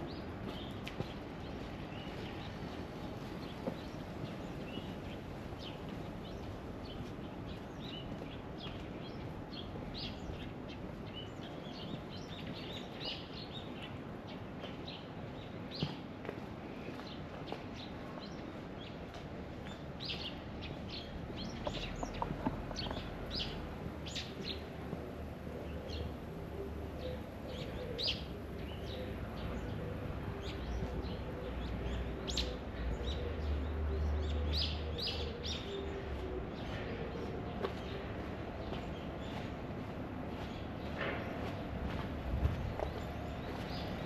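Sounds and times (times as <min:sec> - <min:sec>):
small birds chirping: 0:16.8 - 0:24.8, 0:25.6 - 0:44.0.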